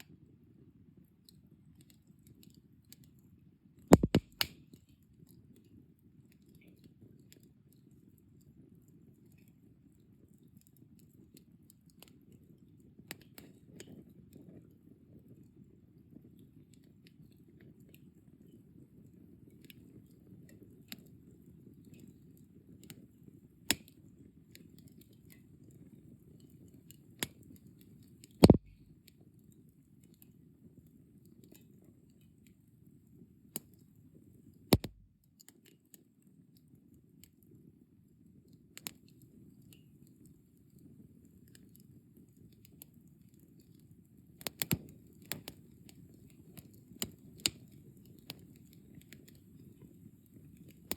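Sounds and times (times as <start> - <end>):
fire crackling and popping: 4.0 - 4.5, 28.4 - 28.8, 34.8 - 35.1, 44.4 - 49.9.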